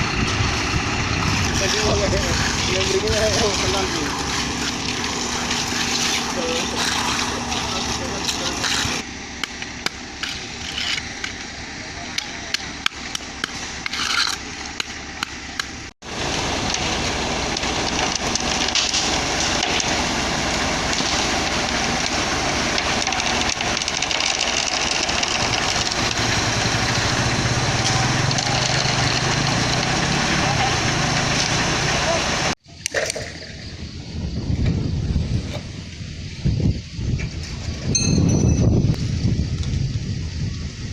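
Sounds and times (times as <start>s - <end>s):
truck engine humming: 0.0s - 32.6s
taps knocks and scrapes: 4.6s - 11.5s, 12.2s - 15.8s.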